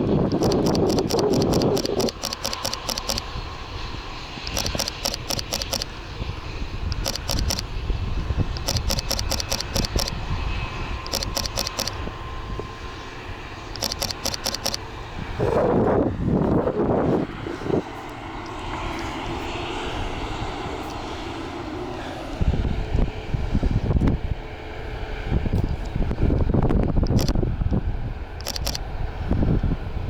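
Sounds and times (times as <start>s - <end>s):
wind rumble on microphone: 0.0s - 14.2s, 15.0s - 30.0s
camera shutter clicking in bursts: 0.3s - 3.3s, 4.4s - 5.9s, 7.0s - 7.7s, 8.6s - 10.2s, 11.0s - 12.0s, 13.7s - 14.8s, 27.1s - 27.4s, 28.4s - 28.8s.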